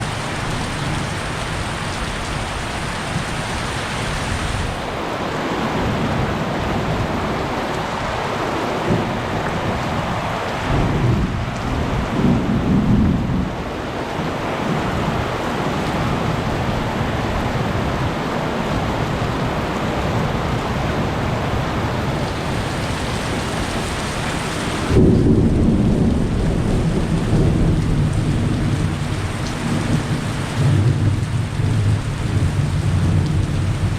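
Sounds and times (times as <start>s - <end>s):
heavy rain: 0.0s - 33.9s
thunder rumbling: 8.8s - 15.4s, 21.9s - 33.9s.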